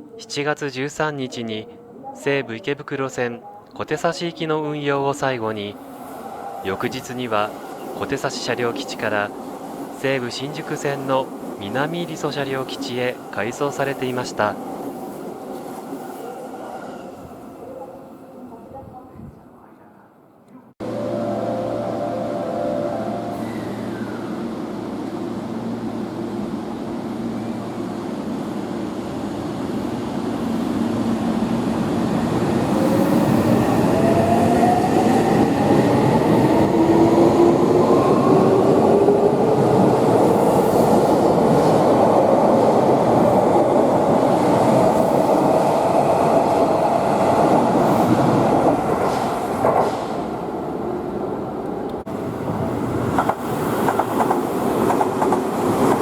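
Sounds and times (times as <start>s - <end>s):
train wheels on rails: 31.8s - 50.4s, 51.9s - 56.0s.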